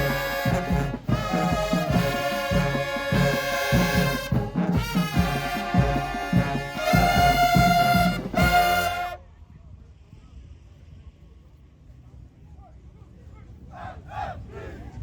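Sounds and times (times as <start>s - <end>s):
brass holding chords: 0.0s - 9.2s
driving drum beat: 0.0s - 9.2s.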